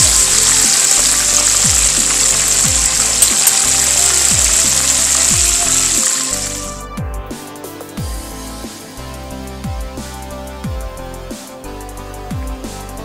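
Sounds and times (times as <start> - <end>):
fish sizzling in oil: 0.0 - 6.8
background music with deep bass: 0.0 - 13.0.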